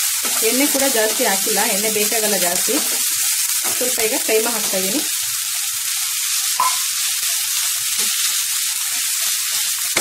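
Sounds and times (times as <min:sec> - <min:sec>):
meat and onions sizzling: 0:00.0 - 0:10.0.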